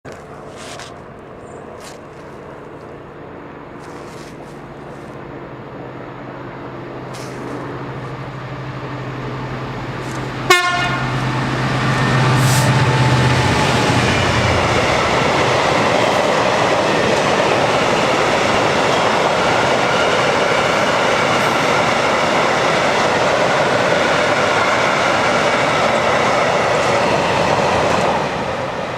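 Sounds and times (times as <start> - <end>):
diesel locomotive engine: 0.0 - 28.9
locomotive horn toot: 10.4 - 11.3.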